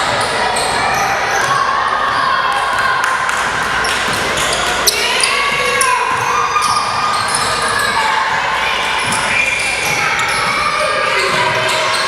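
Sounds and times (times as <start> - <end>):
voices and shouting: 0.0 - 12.0
basketball bouncing on court: 3.3 - 12.0.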